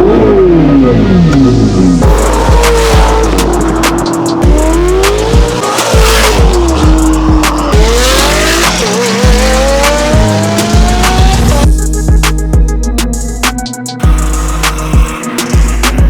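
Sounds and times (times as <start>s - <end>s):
car engine accelerating hard: 0.0s - 11.6s
music with thumping beat: 2.0s - 16.0s.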